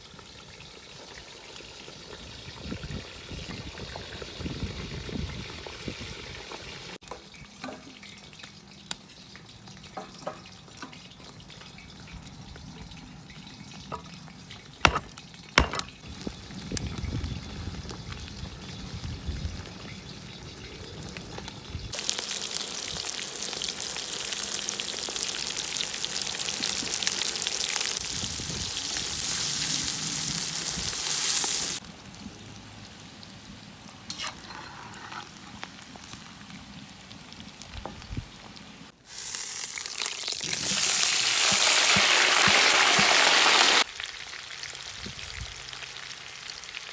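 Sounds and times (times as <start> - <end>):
food sizzling in hot oil: 12.9 - 46.9
sharp knocks: 14.9 - 15.9.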